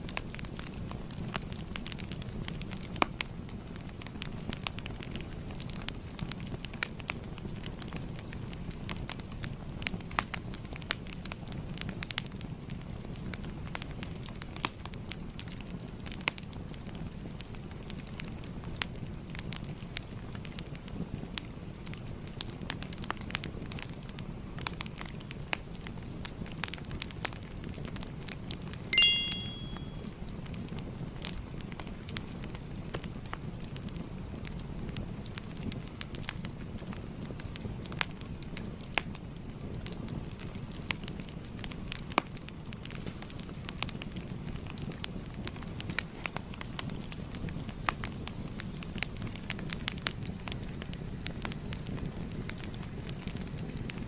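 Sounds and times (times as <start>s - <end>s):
fire crackling and popping: 0.0s - 28.3s, 30.6s - 54.0s
bright timer chime: 29.0s - 30.0s
fire crackling: 33.0s - 54.0s.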